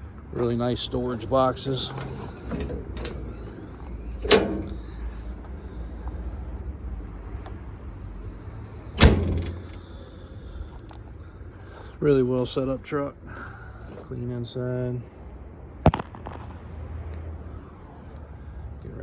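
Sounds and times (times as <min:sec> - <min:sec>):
metal truck door shutting: 0:00.4 - 0:05.2, 0:08.9 - 0:10.7.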